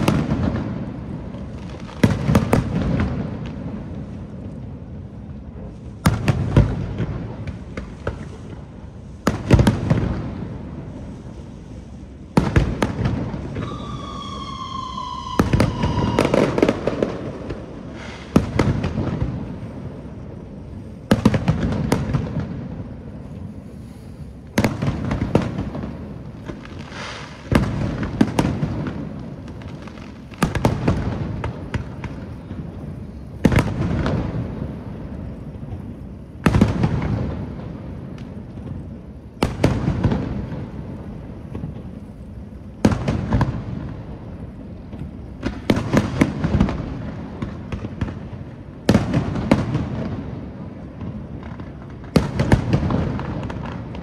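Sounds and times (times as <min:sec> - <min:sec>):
firework shells bursting: 0:12.4 - 0:19.1
falling firework whistle: 0:12.7 - 0:18.7.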